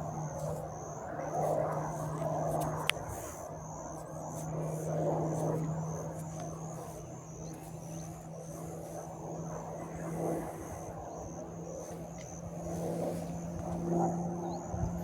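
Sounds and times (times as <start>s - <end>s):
low engine hum: 4.1s - 15.0s.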